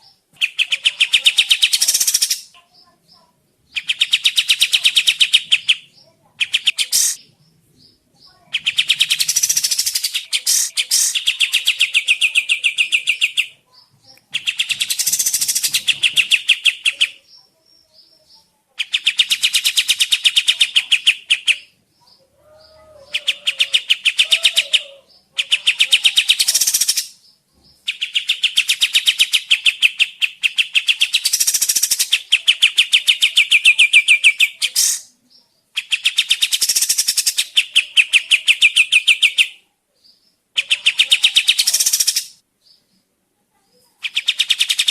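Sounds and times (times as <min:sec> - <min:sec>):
songbird trilling: 0:00.4 - 0:18.0, 0:18.8 - 0:35.1, 0:40.6 - 0:42.4.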